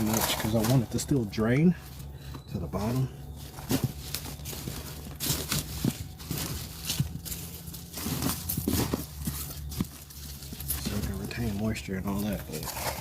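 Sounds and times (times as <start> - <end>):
compost rustling and scraping in tote: 0.0 - 13.0
steady low hum: 0.0 - 13.0.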